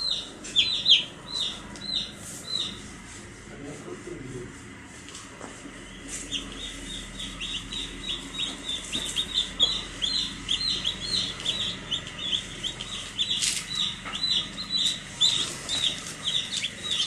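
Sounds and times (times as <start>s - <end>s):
baby chicks peeping: 0.0s - 3.2s, 5.2s - 17.0s.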